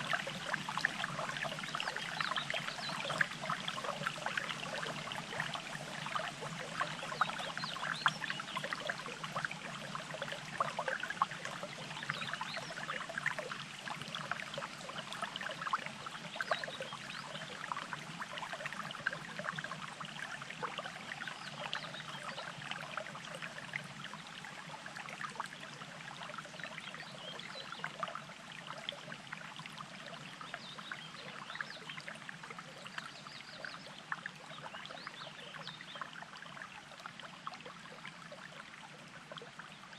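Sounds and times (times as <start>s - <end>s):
stream water burbling: 0.0s - 39.9s.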